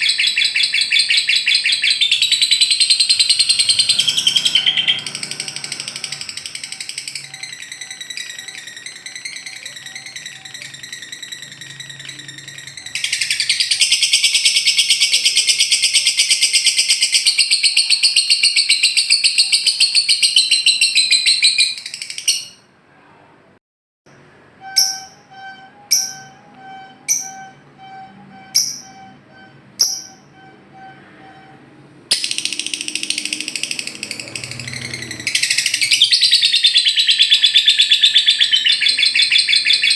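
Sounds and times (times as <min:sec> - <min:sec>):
lovebird rapid trill: 0:00.0 - 0:22.6, 0:24.6 - 0:31.5, 0:32.1 - 0:39.9
sharp bird chirps: 0:00.0 - 0:22.7, 0:24.6 - 0:31.5, 0:32.1 - 0:39.9
steady tone: 0:24.1 - 0:35.9.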